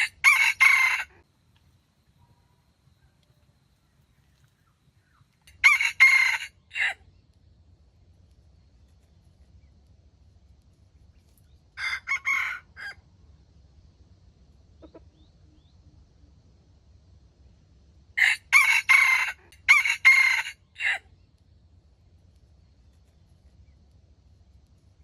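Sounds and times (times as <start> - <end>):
rooster crowing: 0.0 - 1.2, 5.5 - 7.0, 11.8 - 13.0, 18.2 - 21.0.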